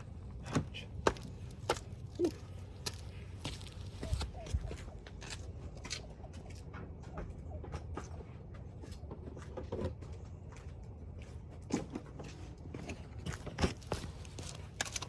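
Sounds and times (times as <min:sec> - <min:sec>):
light clicks and knocks of gear: 0:12.8 - 0:15.0.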